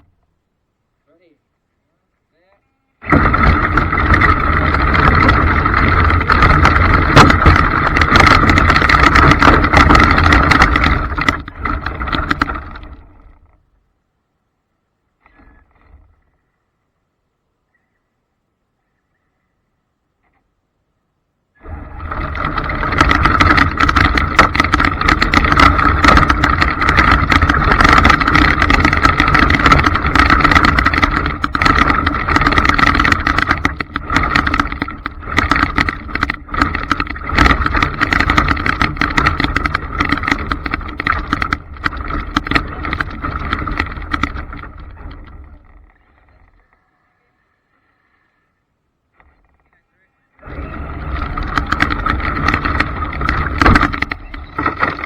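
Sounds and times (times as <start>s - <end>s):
drivetrain rattling and clicking: 3.0s - 13.4s, 21.7s - 46.0s, 50.4s - 55.0s.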